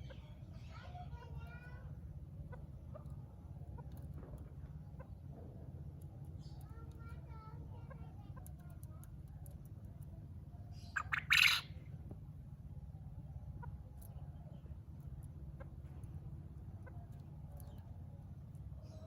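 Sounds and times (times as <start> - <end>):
steady low hum: 0.0 - 19.0
game bird call: 10.8 - 11.8.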